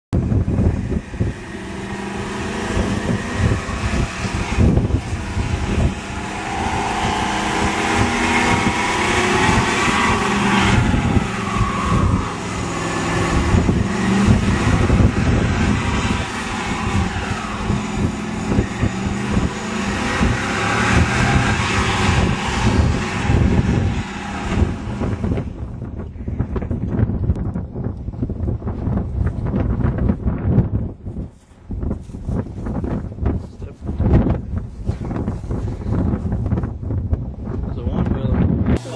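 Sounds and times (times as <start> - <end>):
truck engine revving hard: 0.2 - 26.0
spinning tyres whine: 0.2 - 38.9.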